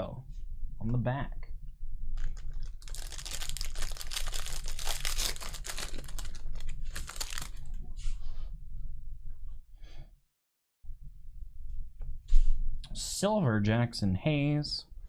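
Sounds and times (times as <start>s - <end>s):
wrapper crinkling and tearing: 2.2s - 7.7s.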